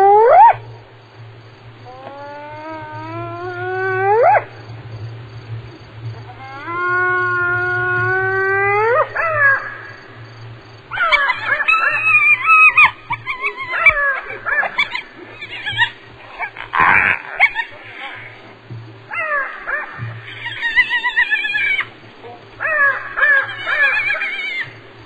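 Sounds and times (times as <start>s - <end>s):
short wavering hyena calls: 1.8s - 4.5s, 10.9s - 18.5s, 19.1s - 22.0s, 22.6s - 24.8s
hyena whooping: 1.8s - 4.6s, 6.2s - 10.1s, 10.9s - 18.5s, 19.1s - 22.0s, 22.6s - 24.8s.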